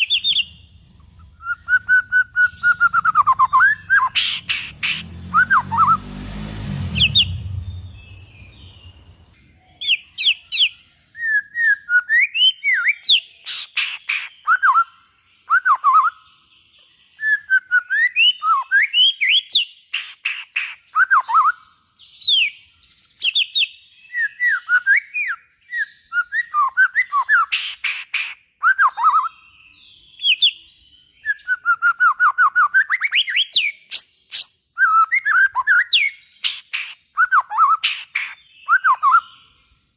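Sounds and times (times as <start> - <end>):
bird singing whistled song: 0.0 - 6.2, 6.8 - 39.9
low rumbling noise: 0.4 - 9.4.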